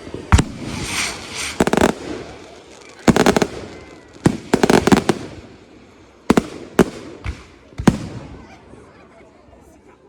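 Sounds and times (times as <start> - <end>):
fireworks bangs: 0.0 - 5.6, 6.3 - 8.4.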